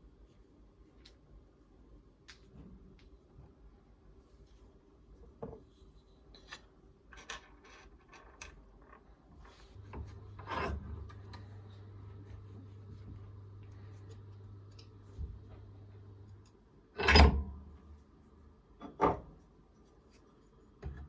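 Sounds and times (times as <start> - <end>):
low steady hum: 9.4 - 21.0.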